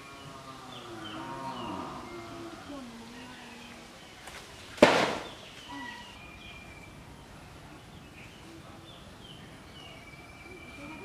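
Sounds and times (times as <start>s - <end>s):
bird chirps: 5.2s - 11.0s.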